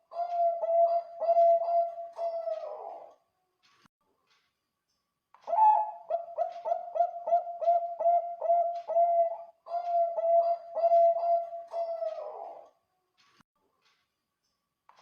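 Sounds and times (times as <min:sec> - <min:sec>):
dove cooing: 0:00.1 - 0:03.1, 0:05.5 - 0:12.7.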